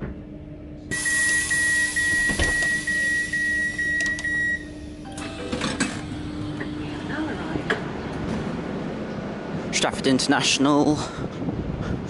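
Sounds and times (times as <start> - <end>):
steady low hum: 0.0 - 9.8
train door warning beeps: 0.9 - 5.9.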